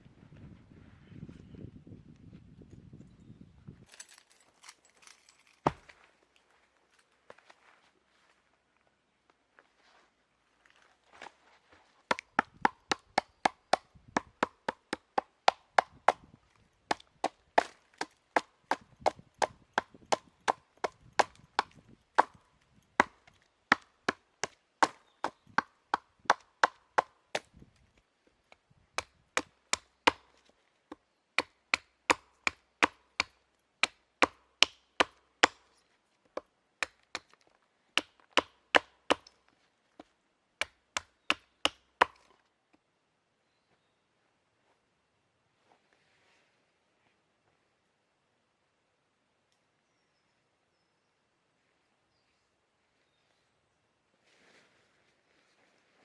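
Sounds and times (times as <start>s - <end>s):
chopping wood: 5.6s - 6.0s, 12.1s - 16.3s, 16.9s - 22.4s, 23.0s - 27.6s, 29.0s - 30.3s, 31.4s - 35.7s, 36.4s - 37.4s, 38.0s - 39.4s, 40.6s - 42.4s.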